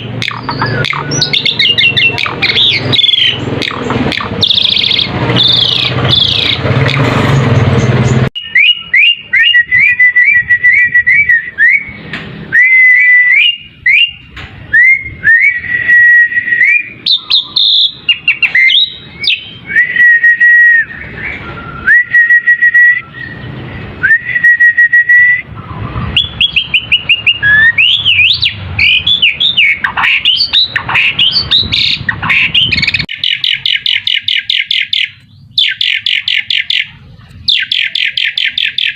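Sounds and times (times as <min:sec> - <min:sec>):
harsh noisy sound: 0:00.0 - 0:09.6
starling singing whistled notes: 0:00.0 - 0:38.9.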